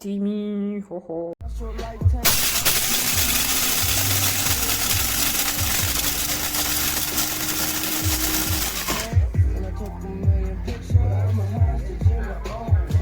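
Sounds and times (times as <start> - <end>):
background music with a beat: 1.4 - 13.0
coffee grinder whirring: 2.2 - 9.2.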